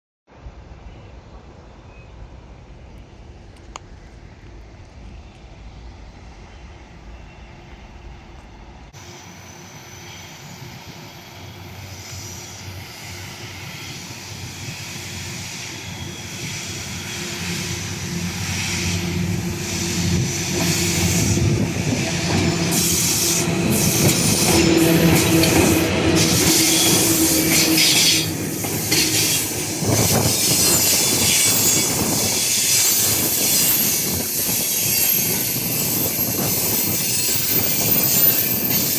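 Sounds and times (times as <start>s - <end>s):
electric locomotive hum: 0.3s - 38.9s
wheels hissing and squealing: 9.0s - 38.9s
wheels clacking over rail joints: 20.5s - 33.1s.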